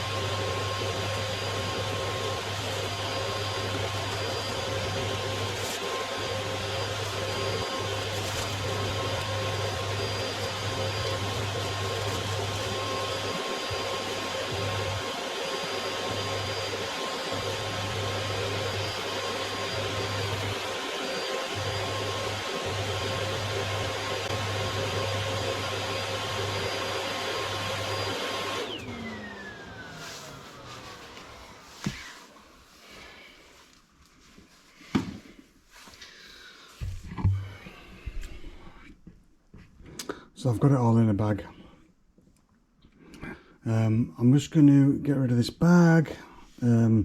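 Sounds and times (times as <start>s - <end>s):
vacuum cleaner whining: 0.0s - 33.7s.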